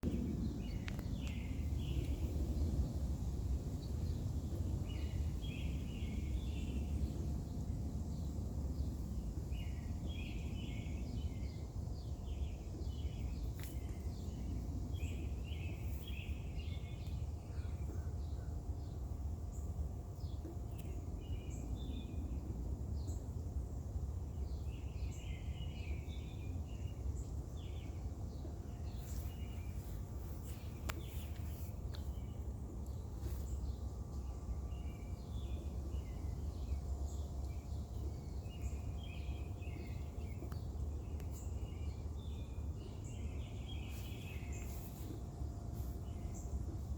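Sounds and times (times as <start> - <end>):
low background rumble: 0.0 - 46.9
birds chirping: 24.2 - 46.9.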